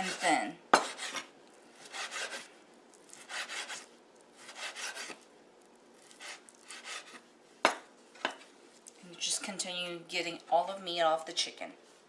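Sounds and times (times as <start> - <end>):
knife slicing raw meat: 0.0 - 5.2, 6.0 - 7.2.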